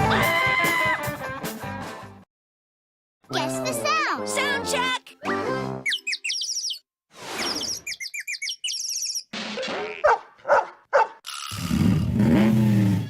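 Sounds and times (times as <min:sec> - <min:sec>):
cartoon bird-like chirping: 0:05.8 - 0:06.8, 0:07.4 - 0:10.1.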